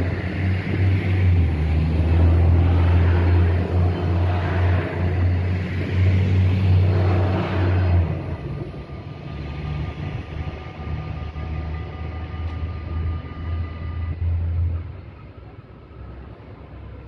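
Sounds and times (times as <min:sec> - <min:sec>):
diesel railcar rumble: 0:00.0 - 0:17.0.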